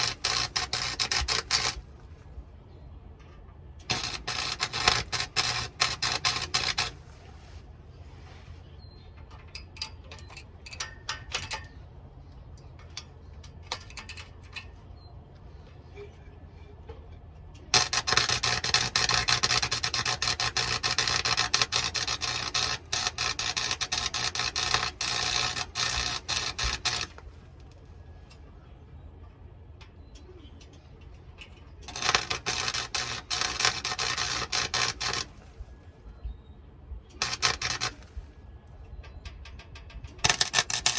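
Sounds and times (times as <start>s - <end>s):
welding arc crackling and sizzling: 0.0s - 1.9s, 3.8s - 7.0s, 17.7s - 27.2s, 31.8s - 35.4s, 37.1s - 38.2s, 40.1s - 40.9s
low steady hum: 0.0s - 40.9s.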